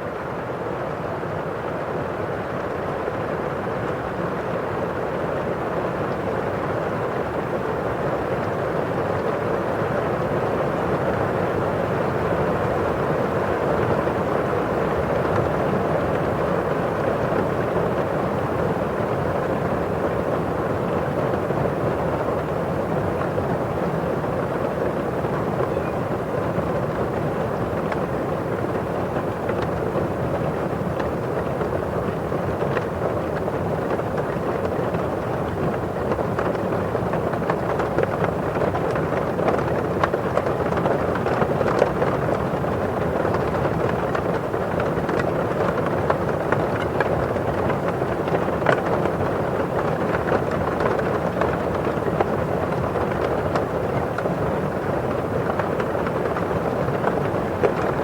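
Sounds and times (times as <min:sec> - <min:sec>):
steady rain: 0:00.0 - 0:58.0
raindrops ticking on window glass: 0:12.0 - 0:58.0.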